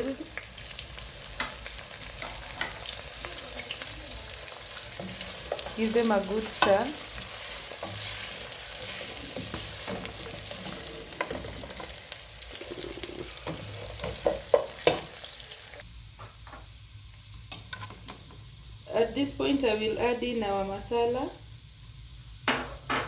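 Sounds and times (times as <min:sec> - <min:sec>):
meat sizzling in hot oil: 0:00.0 - 0:15.9
spoon knocking and scraping pot: 0:04.9 - 0:12.0, 0:12.7 - 0:15.2.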